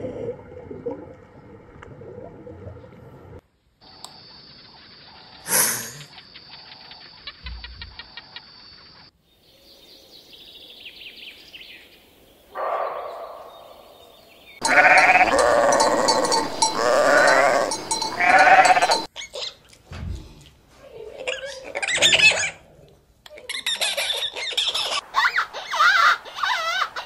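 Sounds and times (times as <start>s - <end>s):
antelope bleating: 14.6s - 19.1s.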